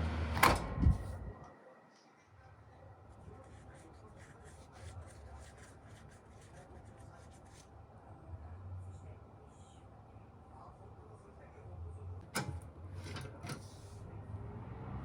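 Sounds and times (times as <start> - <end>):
ventilation fan humming: 0.0 - 1.5.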